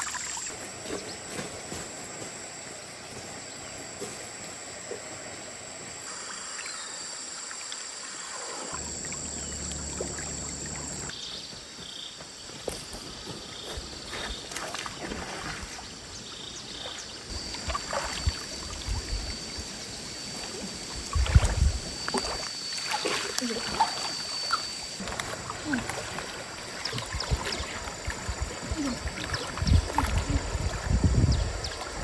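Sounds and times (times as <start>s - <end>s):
stream water running: 0.0s - 11.2s, 12.9s - 32.0s
splashes and knocks: 14.5s - 15.8s, 17.5s - 18.7s, 25.0s - 30.9s.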